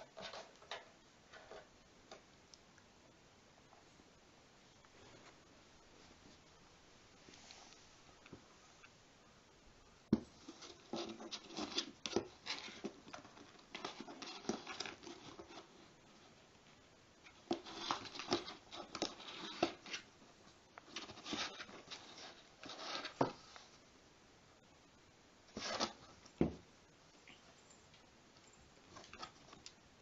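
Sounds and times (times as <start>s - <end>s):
cat claws scratching and pawing: 10.3s - 16.3s, 17.2s - 20.1s, 20.8s - 23.5s.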